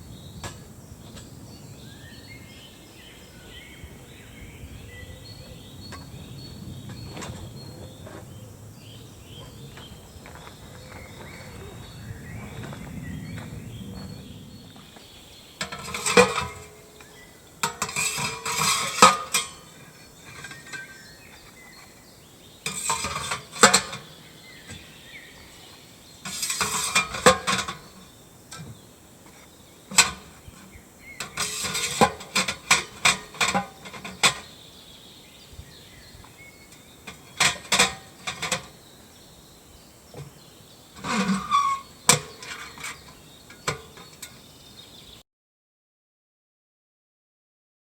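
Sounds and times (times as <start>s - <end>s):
metal camping gear clattering: 15.6s - 39.3s, 40.1s - 45.1s.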